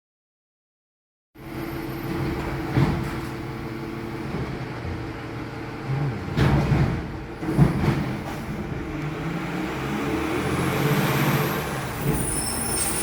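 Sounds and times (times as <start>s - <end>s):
garbage truck engine running: 1.4s - 13.0s
loud thumps and clanks: 6.3s - 8.8s.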